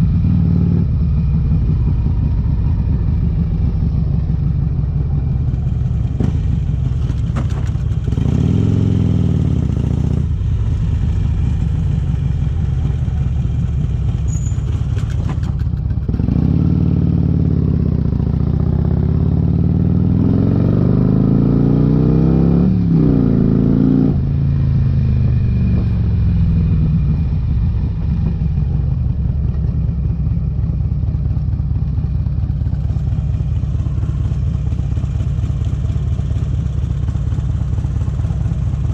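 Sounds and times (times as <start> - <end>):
motorcycle engine revving: 0.0 - 30.7.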